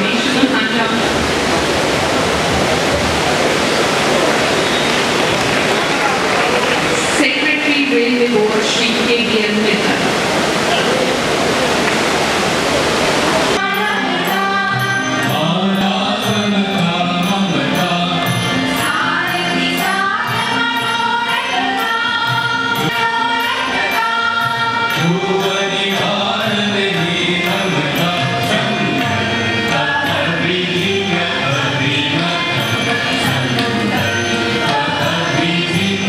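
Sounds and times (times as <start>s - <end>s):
rushing noise: 0.0s - 13.6s
voices singing in chant style: 2.8s - 36.0s.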